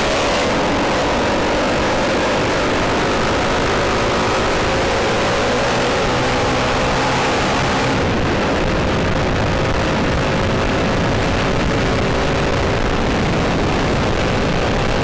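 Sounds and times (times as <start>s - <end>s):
motorcycle engines running: 0.0s - 15.0s
wind noise: 0.0s - 15.0s.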